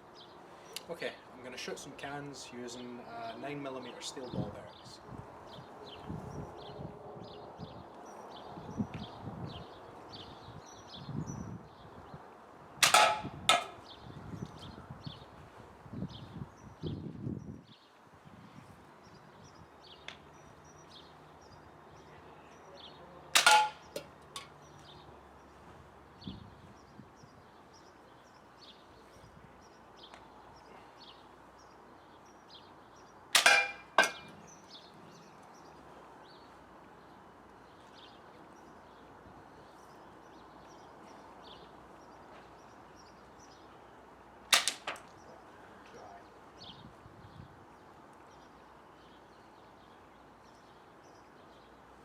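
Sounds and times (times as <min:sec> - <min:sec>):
slingshot shot cracking: 0:44.5 - 0:45.0.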